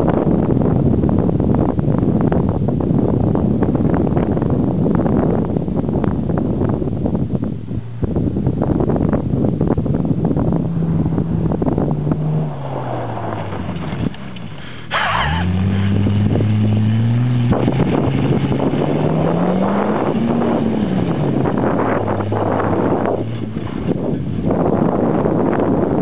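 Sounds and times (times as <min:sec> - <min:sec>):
wheels spinning in loose dirt: 0:00.0 - 0:26.0
wind buffeting microphone: 0:00.0 - 0:26.0
car engine revving hard: 0:09.8 - 0:26.0.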